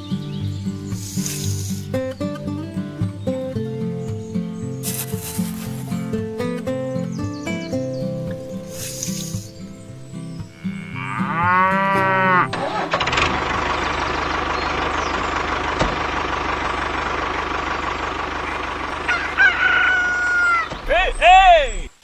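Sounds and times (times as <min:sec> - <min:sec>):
animal call rising and falling: 0:19.0 - 0:21.9.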